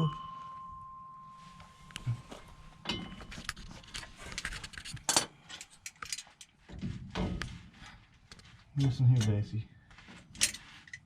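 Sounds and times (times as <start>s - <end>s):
hand tools clinking on metal: 1.8s - 6.6s.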